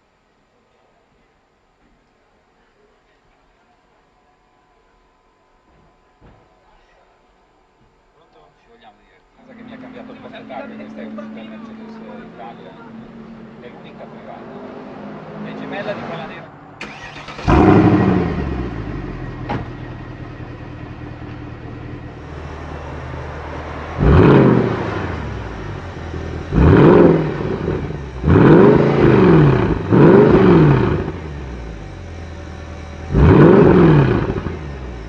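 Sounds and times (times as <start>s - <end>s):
car engine idling and revving: 9.5s - 35.0s.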